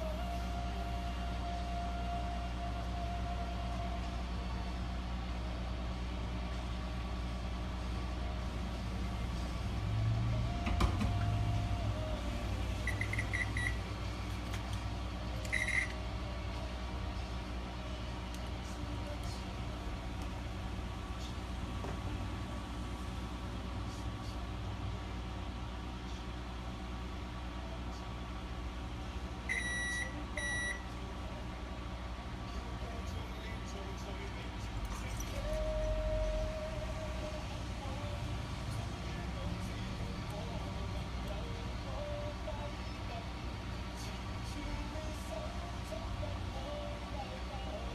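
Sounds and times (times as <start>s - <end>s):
steady low hum: 0.0s - 47.9s
brief held tone: 12.8s - 13.8s, 15.5s - 16.0s
short high electronic beeps: 12.9s - 13.8s, 15.5s - 16.0s.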